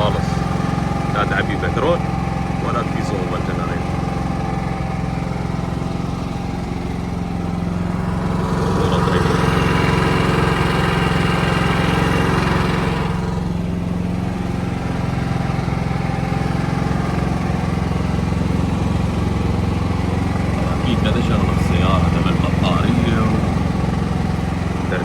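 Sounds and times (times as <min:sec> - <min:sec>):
generator engine running: 0:00.0 - 0:25.0.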